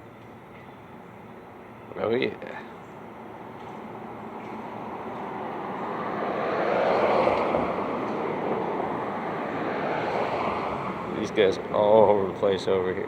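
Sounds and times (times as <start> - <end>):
vehicle passing by: 4.5 - 13.0.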